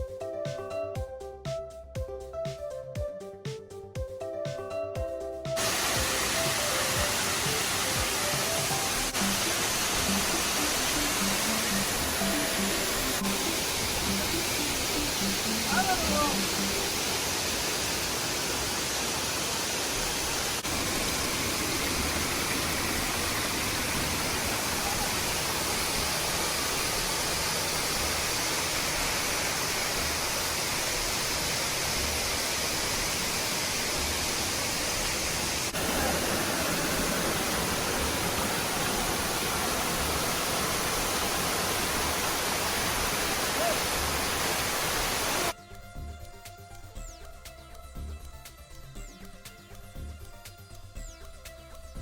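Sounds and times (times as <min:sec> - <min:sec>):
waterfall rushing: 0:05.6 - 0:45.5.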